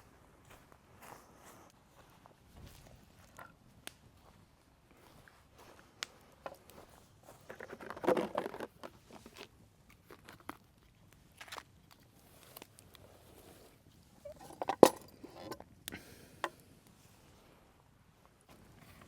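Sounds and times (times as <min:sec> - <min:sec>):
campfire crackling: 0:03.6 - 0:07.1
camping gear rustling: 0:04.2 - 0:19.0.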